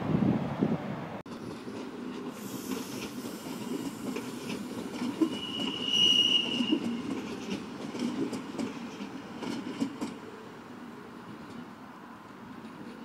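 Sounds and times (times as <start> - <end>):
train rumbling on rails: 0.0 - 13.0
high wheel squeal: 2.4 - 7.0.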